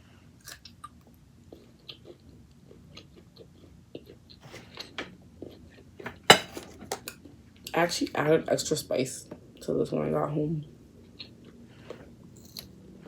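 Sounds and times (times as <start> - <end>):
person chewing food: 0.4 - 6.2, 11.0 - 12.7.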